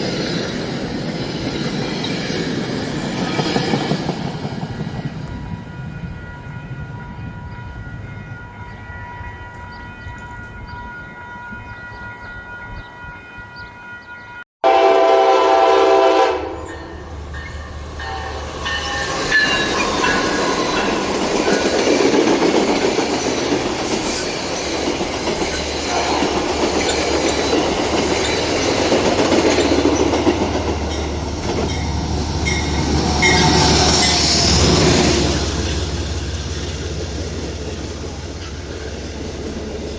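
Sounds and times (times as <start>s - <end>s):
train passing rumble: 0.0s - 39.9s
train horn blast: 14.6s - 17.2s, 25.8s - 26.6s
wheels clattering on rail joints: 16.7s - 39.9s.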